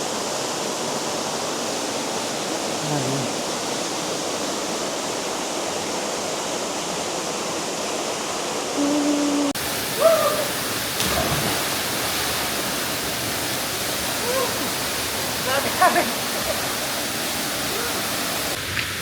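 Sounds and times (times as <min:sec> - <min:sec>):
waterfall rushing: 0:00.0 - 0:19.0
voice-like call: 0:08.8 - 0:10.5.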